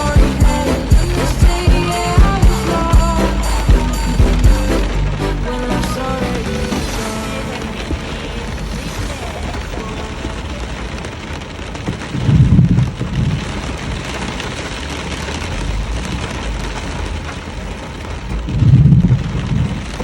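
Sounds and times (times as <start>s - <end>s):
low rumbles: 0.0s - 14.4s
steady rain hissing: 0.0s - 20.0s.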